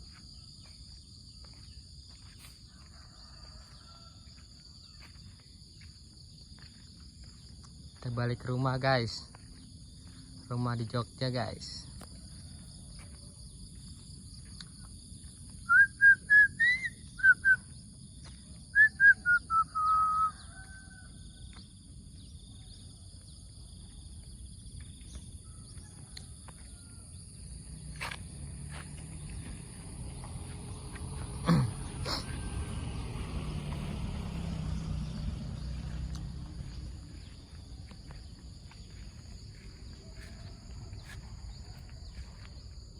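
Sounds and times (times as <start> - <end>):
bird whistling: 15.6 - 17.7, 18.7 - 20.5.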